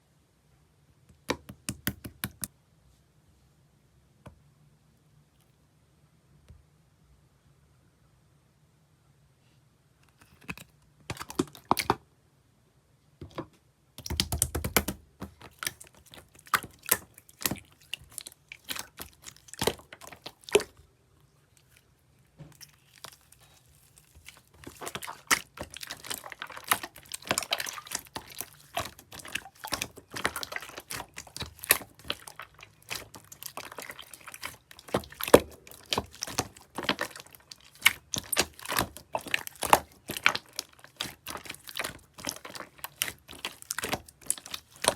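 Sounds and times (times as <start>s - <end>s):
slime squished by hand: 14.0s - 20.9s, 21.5s - 44.9s.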